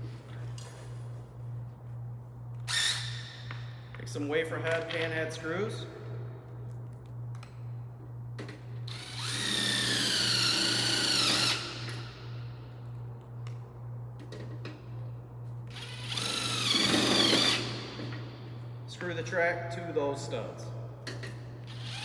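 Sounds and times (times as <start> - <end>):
cordless drill driving screws: 8.9 - 12.0, 15.8 - 17.7.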